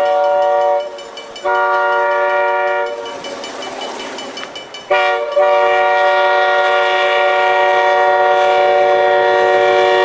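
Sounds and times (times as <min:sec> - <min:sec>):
train air horn blast: 0:00.0 - 0:03.0, 0:04.9 - 0:10.0.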